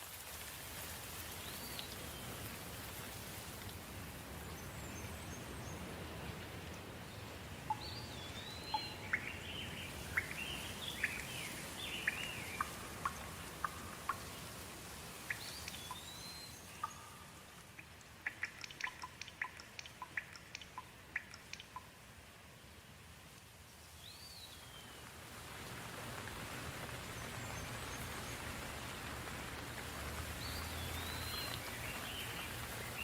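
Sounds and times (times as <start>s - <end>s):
soft rain: 0.0s - 33.0s
water drops dripping: 7.6s - 22.1s
bird chirps: 7.7s - 14.2s, 15.3s - 21.9s, 30.4s - 33.0s.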